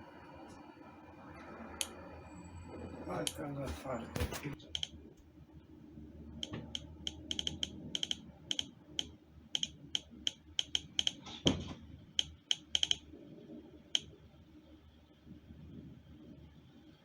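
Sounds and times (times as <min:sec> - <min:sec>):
computer keyboard key clicks: 0:04.7 - 0:04.9, 0:06.4 - 0:11.2, 0:12.2 - 0:13.0.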